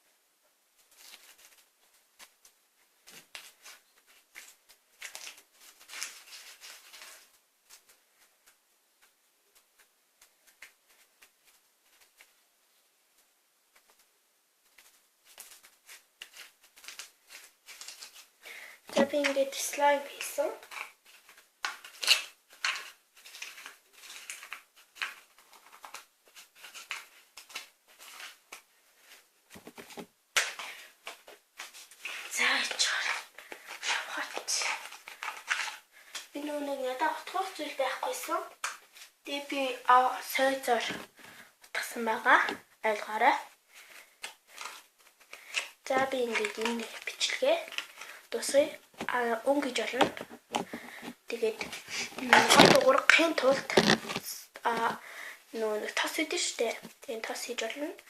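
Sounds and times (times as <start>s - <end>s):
slime squishing: 51.4s - 54.8s.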